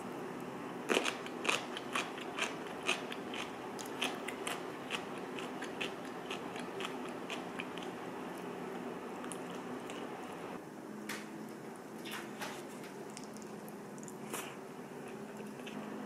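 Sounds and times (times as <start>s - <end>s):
crunchy food being chewed: 0.9s - 8.6s, 12.7s - 16.0s.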